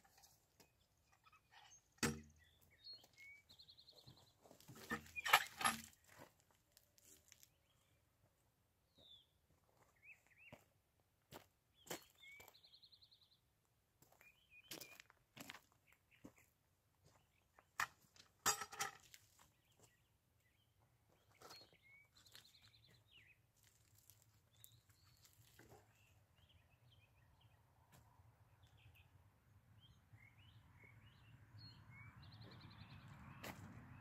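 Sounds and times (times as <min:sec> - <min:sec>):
birds chirping and trilling: 0:00.2 - 0:05.9, 0:11.8 - 0:13.3
sharp knocks and rustles: 0:04.6 - 0:06.0.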